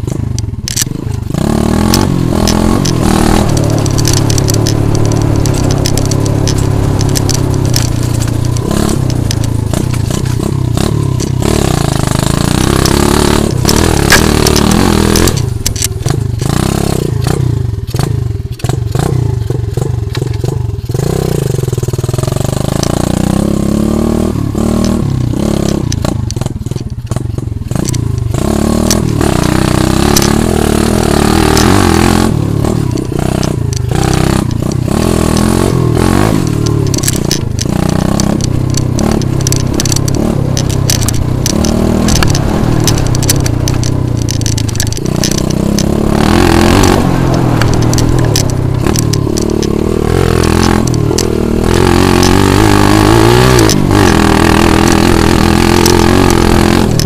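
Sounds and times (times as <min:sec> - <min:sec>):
pit bike engine revving: 0:00.0 - 0:57.0.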